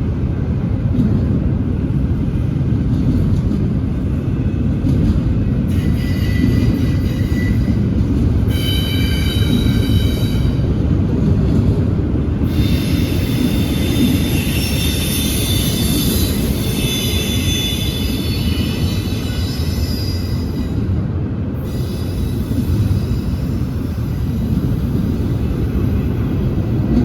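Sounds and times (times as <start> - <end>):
train wheels rumbling on rail: 0.0 - 27.0
high-pitched wheel squeal: 5.8 - 7.8, 12.6 - 20.8.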